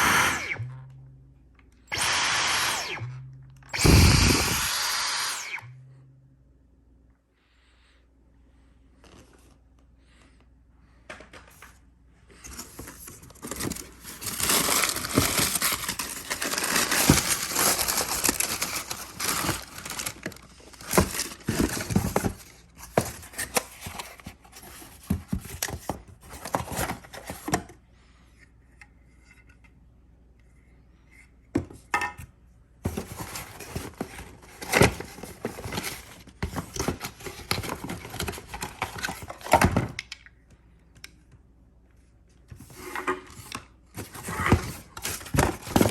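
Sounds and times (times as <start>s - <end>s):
packaging rustling and crinkling: 12.5s - 27.5s, 32.9s - 39.7s, 44.0s - 45.9s
packaging being torn: 13.4s - 21.6s.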